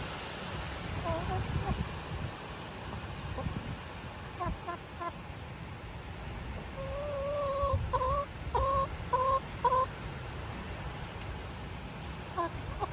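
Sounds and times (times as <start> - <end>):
low rumble of wind: 0.0 - 12.9
hen clucking: 1.0 - 1.8, 4.3 - 5.2, 6.8 - 10.0, 12.1 - 12.9.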